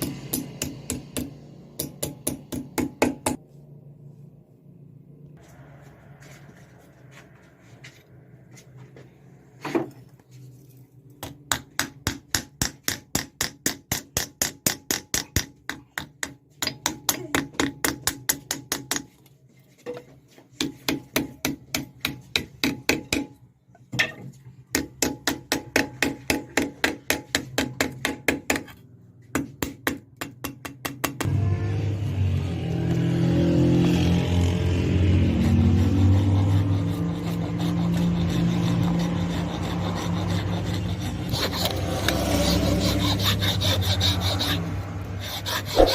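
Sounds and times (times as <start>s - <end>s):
hammer striking metal on anvil: 0.0s - 3.4s
steady low hum: 0.1s - 11.2s.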